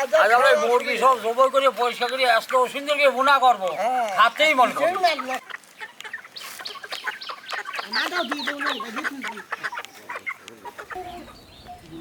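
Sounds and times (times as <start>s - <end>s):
chickens clucking and squawking: 3.6s - 12.0s.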